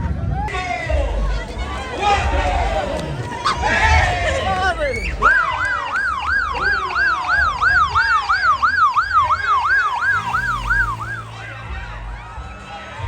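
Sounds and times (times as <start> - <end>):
siren on fast yelp: 3.3 - 12.5.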